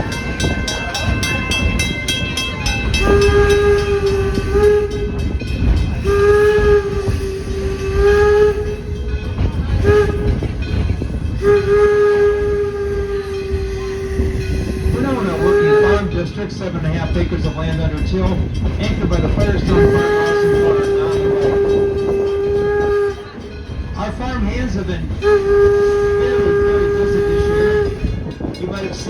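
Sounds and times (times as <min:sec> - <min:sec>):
train clanging: 0:00.0 - 0:29.0
steam whistle blasts: 0:02.9 - 0:09.2, 0:09.8 - 0:16.2, 0:19.5 - 0:23.6, 0:25.2 - 0:28.3.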